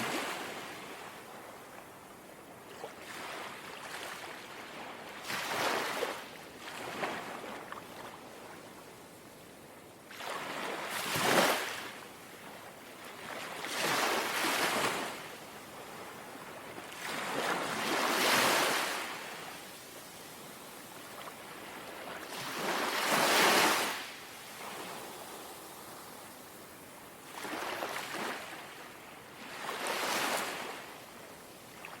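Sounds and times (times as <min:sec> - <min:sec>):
small sea waves lapping ashore: 0:00.0 - 0:32.0.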